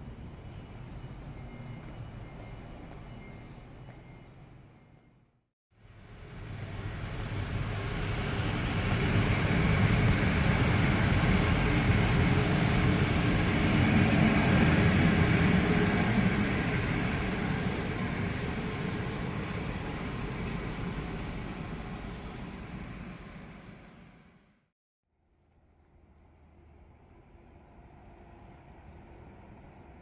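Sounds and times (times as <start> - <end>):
train passing: 0.0 - 5.3, 5.9 - 24.5.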